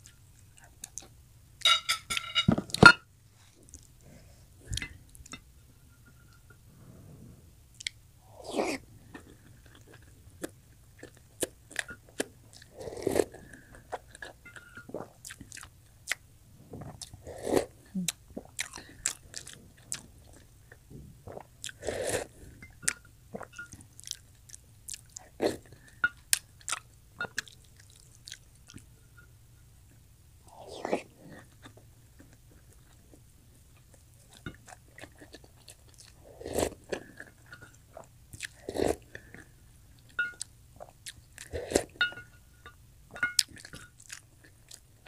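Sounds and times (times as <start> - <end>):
person chewing eggs: 7.8 - 29.0, 30.5 - 42.4, 43.1 - 45.0.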